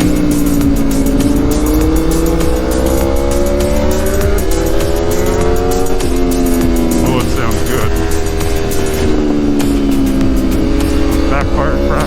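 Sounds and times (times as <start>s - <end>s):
motorcycle engine revving: 0.0s - 12.0s
wind noise: 4.4s - 11.4s.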